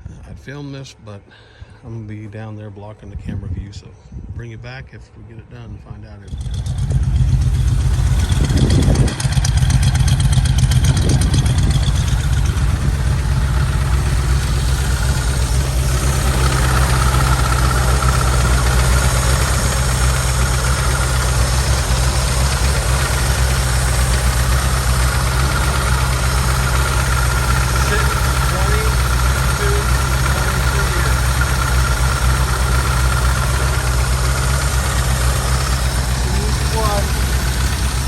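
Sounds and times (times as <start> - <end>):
pickup engine idling: 6.3 - 38.0.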